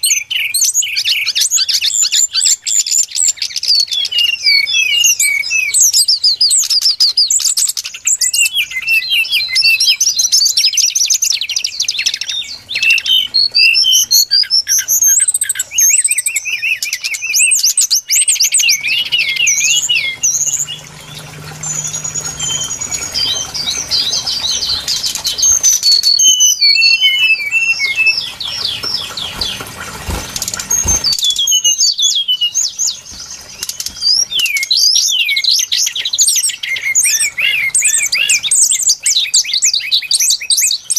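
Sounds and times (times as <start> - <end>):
bird song chirps and trills: 0.0 - 40.9
faint low hum: 18.5 - 31.4.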